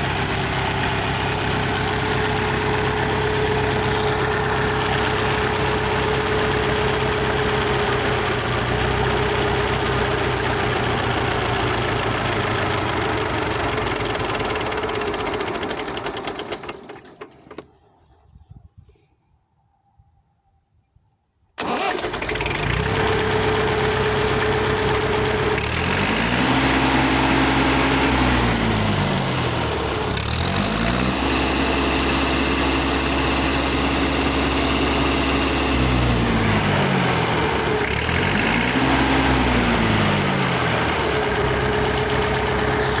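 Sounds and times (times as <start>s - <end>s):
tractor engine revving: 0.0s - 17.9s, 21.6s - 43.0s.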